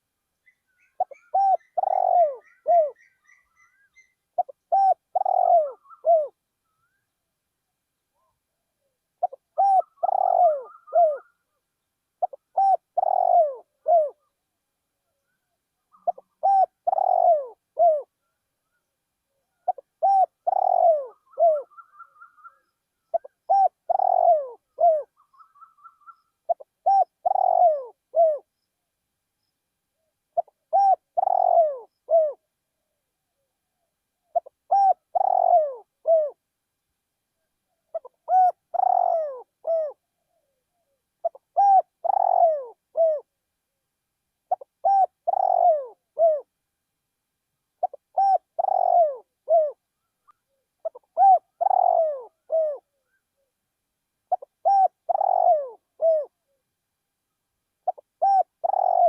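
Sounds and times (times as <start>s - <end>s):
dove cooing: 0.5s - 7.0s, 9.2s - 11.5s, 12.2s - 14.3s, 15.9s - 18.3s, 19.5s - 28.5s, 30.4s - 32.4s, 34.3s - 36.4s, 37.9s - 43.3s, 44.5s - 46.5s, 47.8s - 53.2s, 54.3s - 56.6s, 57.8s - 59.0s.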